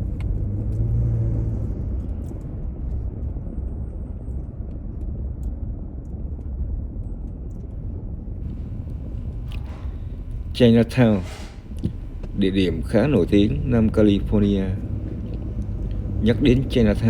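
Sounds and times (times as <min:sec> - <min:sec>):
road rumble: 0:00.0 - 0:04.2, 0:08.4 - 0:17.0
low engine hum: 0:00.0 - 0:05.4, 0:08.4 - 0:17.0.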